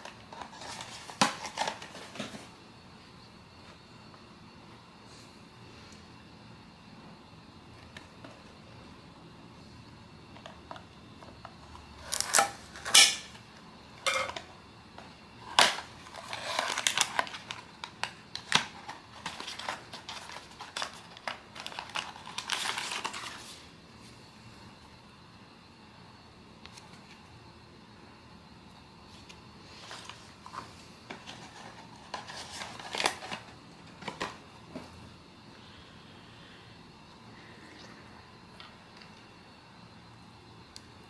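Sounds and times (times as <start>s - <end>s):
plastic packaging being handled: 0.0s - 2.6s, 15.4s - 23.7s, 29.2s - 34.9s.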